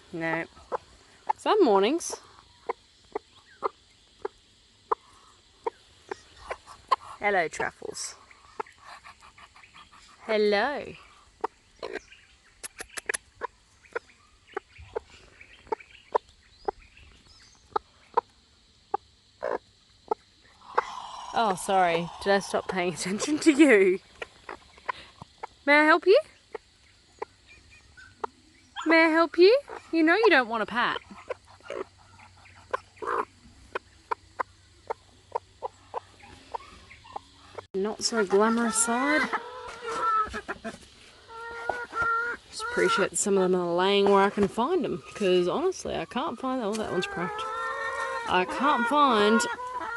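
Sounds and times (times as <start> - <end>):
chicken clucking: 0.5 - 10.4, 29.6 - 44.6, 46.7 - 49.9.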